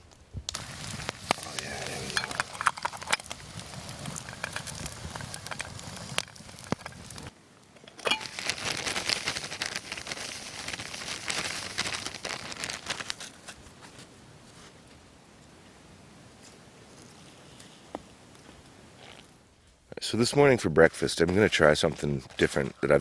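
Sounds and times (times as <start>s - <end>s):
campfire crackling and popping: 0.0s - 14.1s.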